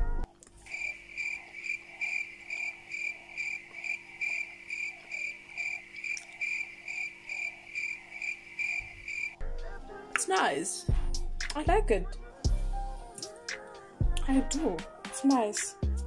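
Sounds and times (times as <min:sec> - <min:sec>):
cricket chirping: 0:00.3 - 0:09.4.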